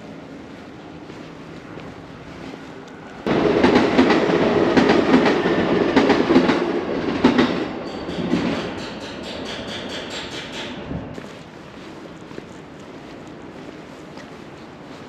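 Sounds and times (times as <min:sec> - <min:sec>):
train wheels clacking over rail joints: 0:03.3 - 0:10.9.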